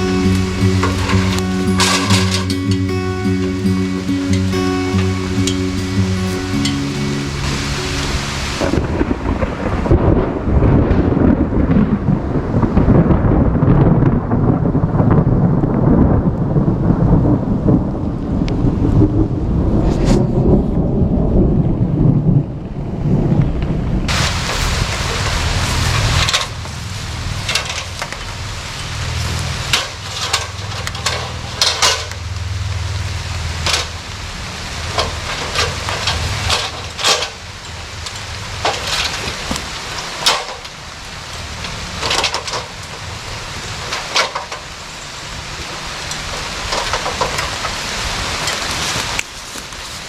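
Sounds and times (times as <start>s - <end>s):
sharp taps of raindrops: 0.0s - 8.8s, 23.4s - 44.8s, 45.6s - 50.0s
rain hissing: 0.0s - 12.9s, 17.7s - 50.0s
low thunder rumble: 7.6s - 44.0s.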